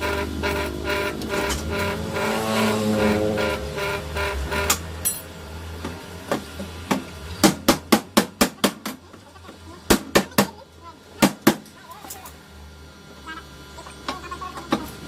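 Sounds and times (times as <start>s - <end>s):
steady pitched drone: 0.0s - 5.7s.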